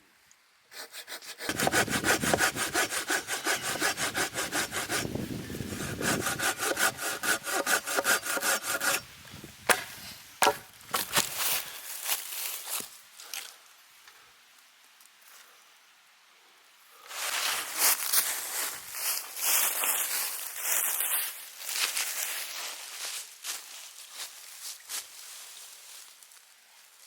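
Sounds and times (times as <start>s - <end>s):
hand saw cutting wood: 0.7s - 9.1s.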